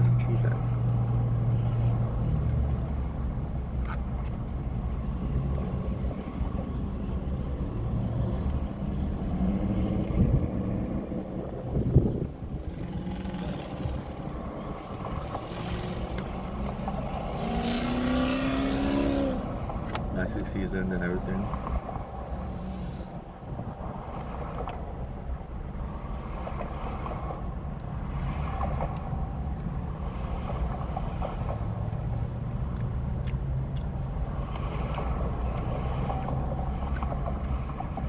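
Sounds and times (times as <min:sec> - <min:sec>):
motor vehicle rumble: 0:00.0 - 0:38.0.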